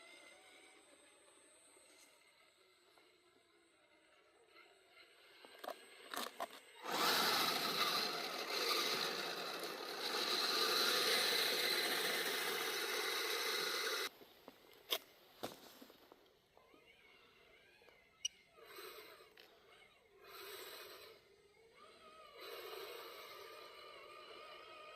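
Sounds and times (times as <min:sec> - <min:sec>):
toy crawler drivetrain grinding: 0:04.9 - 0:14.1, 0:20.2 - 0:24.9.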